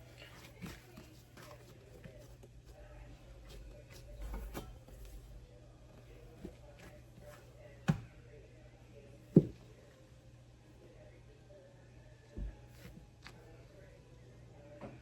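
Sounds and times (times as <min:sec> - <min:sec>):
dough handling rustle: 0:00.0 - 0:05.3.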